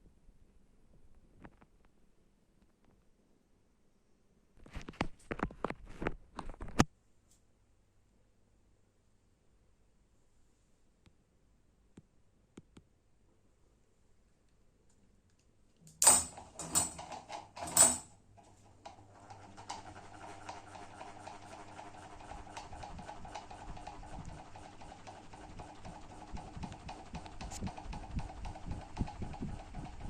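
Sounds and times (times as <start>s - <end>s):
ceiling fan motor hum: 15.8s - 30.0s.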